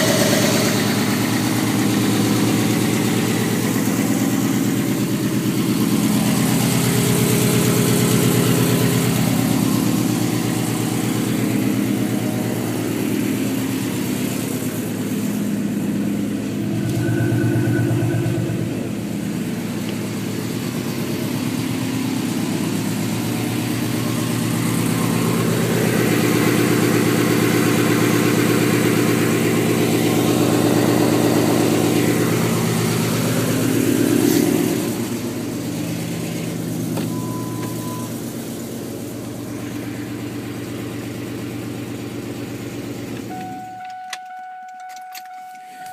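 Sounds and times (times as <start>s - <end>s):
car engine idling unevenly: 0.0s - 45.9s.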